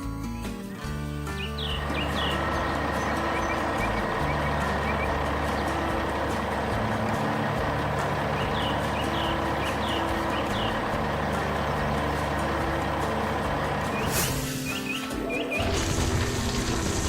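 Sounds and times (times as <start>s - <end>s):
low background music: 0.0s - 17.0s
large vehicle engine running: 0.1s - 17.0s
short chirps: 14.0s - 15.6s.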